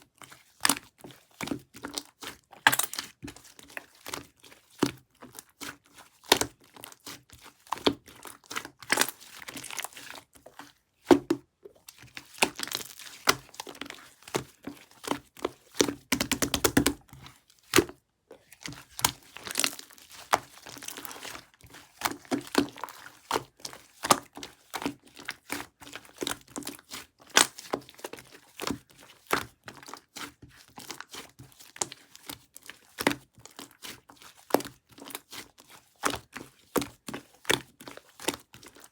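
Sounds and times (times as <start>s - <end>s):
slime squelching and popping: 1.5s - 10.2s, 11.0s - 30.1s.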